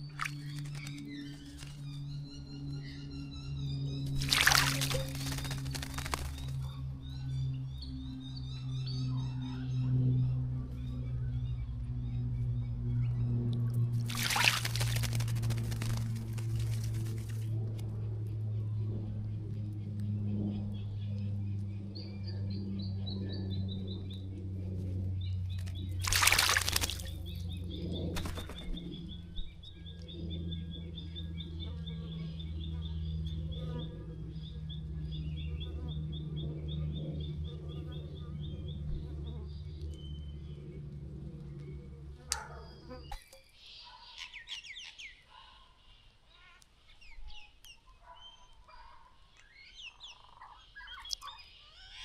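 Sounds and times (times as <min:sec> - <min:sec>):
water splashing in bird bath: 0:00.0 - 0:00.9, 0:04.1 - 0:06.7, 0:14.0 - 0:17.4, 0:25.6 - 0:27.4
birdsong with rapid trill: 0:00.0 - 0:17.4, 0:47.0 - 0:52.0
steady low hum: 0:00.0 - 0:43.2.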